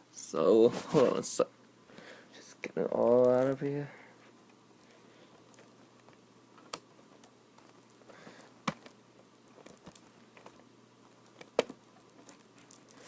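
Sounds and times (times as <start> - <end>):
plastic packaging being handled: 3.0 - 3.9, 4.7 - 13.0.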